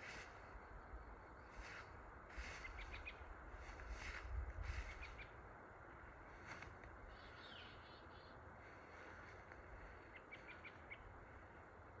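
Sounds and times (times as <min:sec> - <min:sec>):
birds chirping: 0:07.0 - 0:11.6.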